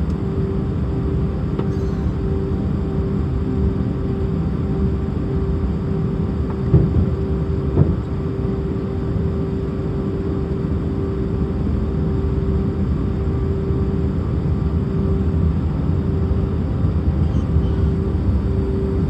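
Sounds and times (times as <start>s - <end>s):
jet engine cabin rumble: 0.0s - 19.0s.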